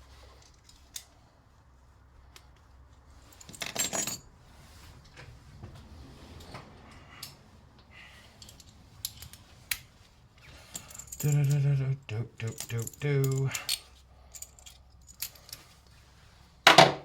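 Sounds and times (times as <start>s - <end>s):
small metal parts clinking: 3.2s - 4.3s, 8.3s - 9.5s, 10.4s - 11.7s, 12.4s - 15.9s.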